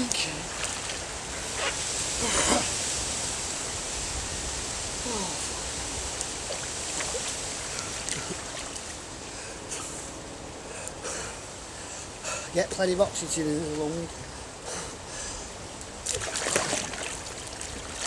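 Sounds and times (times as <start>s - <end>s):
small water splashes: 0.0s - 1.8s, 6.2s - 9.0s, 15.9s - 18.0s
pond water sloshing: 0.0s - 3.0s, 5.1s - 9.3s, 15.8s - 18.0s.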